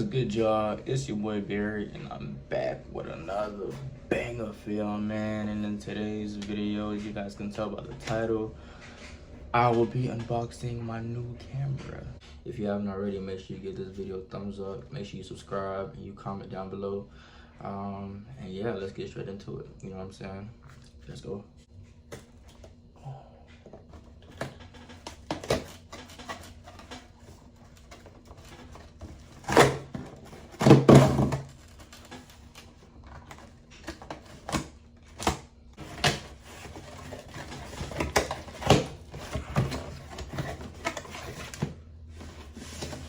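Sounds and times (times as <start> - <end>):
cardboard box being handled and opened: 23.8 - 43.0.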